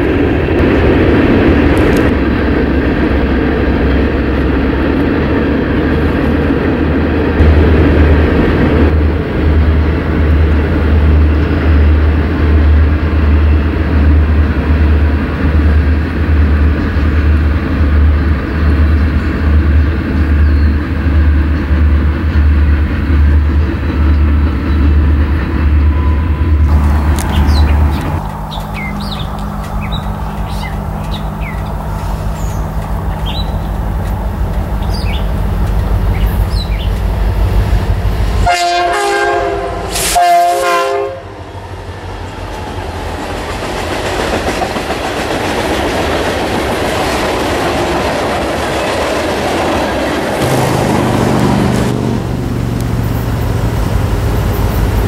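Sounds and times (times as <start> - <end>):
diesel locomotive drone: 0.0 - 55.0
rush of train passing: 0.0 - 55.0
locomotive chime horn: 25.3 - 32.4, 38.4 - 41.4.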